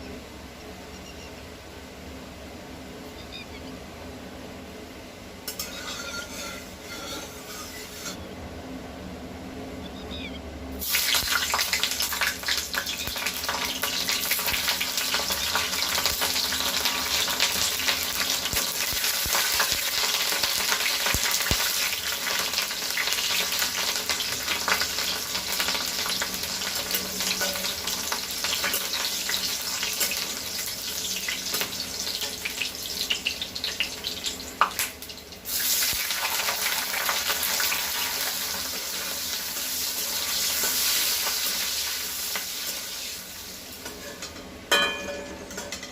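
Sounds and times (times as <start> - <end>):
food sizzling in hot oil: 10.8 - 44.4.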